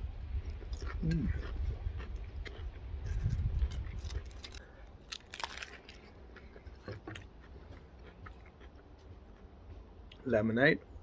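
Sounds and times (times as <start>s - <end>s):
person chewing: 0.2s - 10.2s
crunching crisps: 0.9s - 7.2s.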